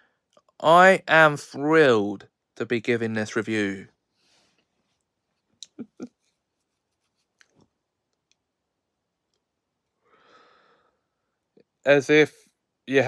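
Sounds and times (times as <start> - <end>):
mouth clicks: 5.6 - 6.1
soft intake of breath: 10.0 - 11.1.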